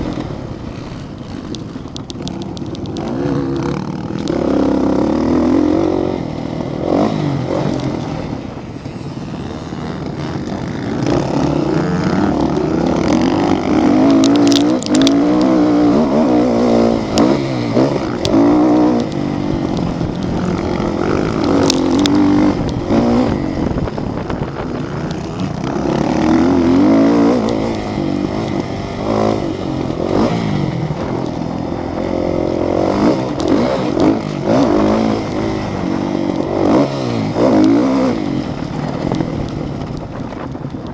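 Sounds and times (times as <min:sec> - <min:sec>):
motorcycle engines revving: 0:00.0 - 0:40.9
sharp clicks: 0:01.2 - 0:04.5, 0:12.4 - 0:15.7, 0:17.0 - 0:23.2.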